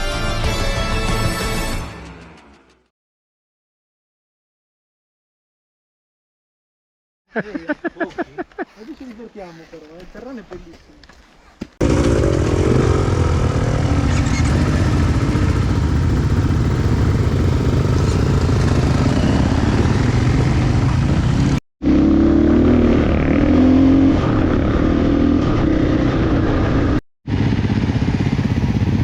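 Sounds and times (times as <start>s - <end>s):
motorcycle engine revving: 11.8s - 29.0s.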